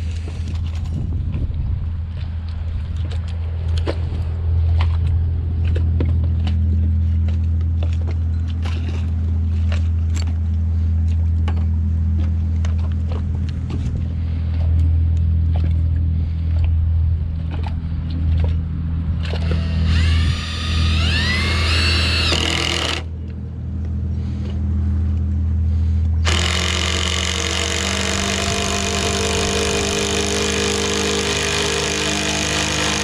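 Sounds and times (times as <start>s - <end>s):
low engine drone: 0.0s - 33.0s.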